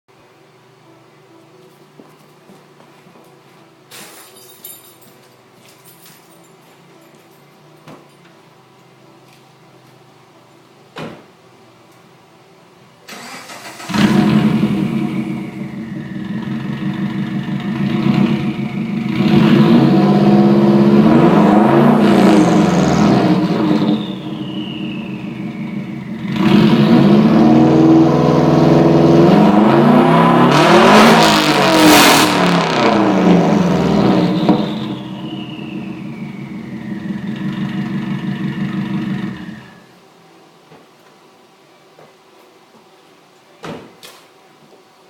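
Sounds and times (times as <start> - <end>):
car engine idling and revving: 13.6 - 39.8
high whistle falling in pitch: 23.6 - 26.0, 34.3 - 37.2.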